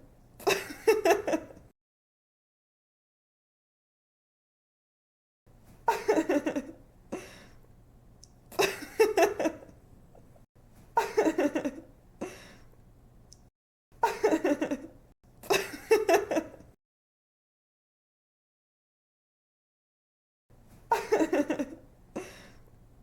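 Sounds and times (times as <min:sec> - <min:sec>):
young woman giggling: 0:00.4 - 0:01.6, 0:05.9 - 0:06.8, 0:08.6 - 0:09.7, 0:11.0 - 0:11.9, 0:14.0 - 0:16.7, 0:20.9 - 0:22.5.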